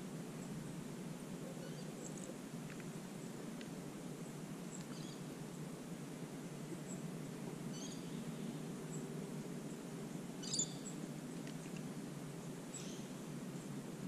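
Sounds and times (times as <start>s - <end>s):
high bird chirps: 10.4s - 10.9s.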